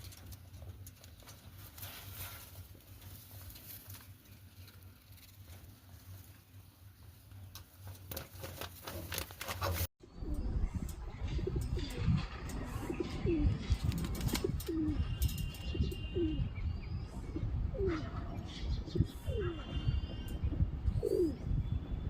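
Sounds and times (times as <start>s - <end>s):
birds scratching and clicking: 0.0s - 6.5s, 7.4s - 9.9s, 11.6s - 16.0s
pigeons cooing: 11.3s - 16.5s, 17.2s - 20.2s, 20.9s - 21.5s.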